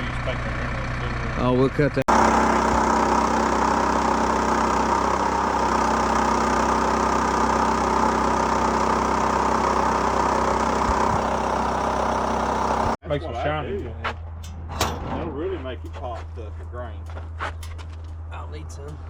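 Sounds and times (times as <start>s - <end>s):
sawmill engine running: 0.0s - 13.0s.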